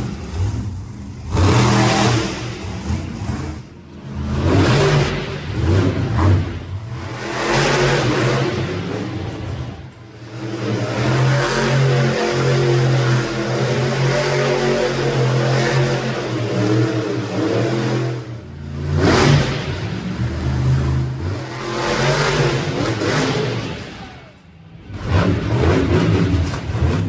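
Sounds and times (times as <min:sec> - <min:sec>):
truck engine revving hard: 0:00.0 - 0:27.0.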